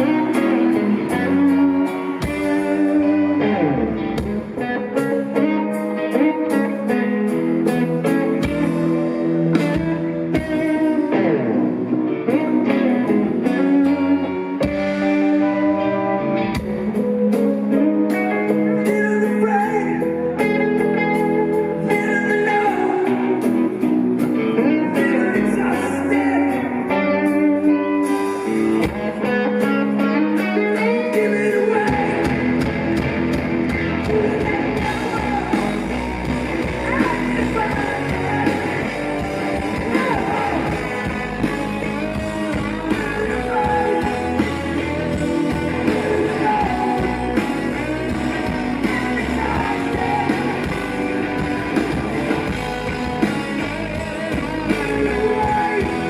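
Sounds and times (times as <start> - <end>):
electric guitar: 0.0 - 56.0
live rock band playing: 0.0 - 56.0.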